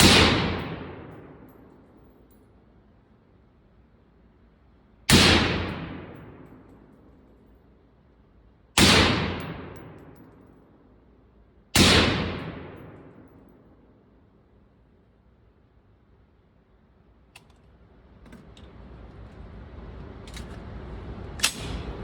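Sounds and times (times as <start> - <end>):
rifle shots: 0.0 - 1.5, 5.1 - 6.7, 8.8 - 10.2, 11.8 - 13.3.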